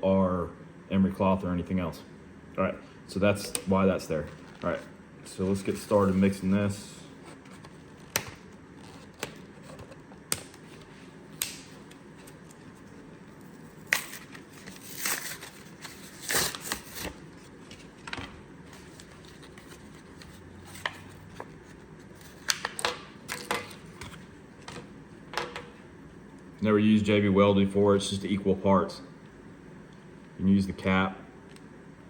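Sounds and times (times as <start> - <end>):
plastic packaging crinkling: 13.7 - 18.1.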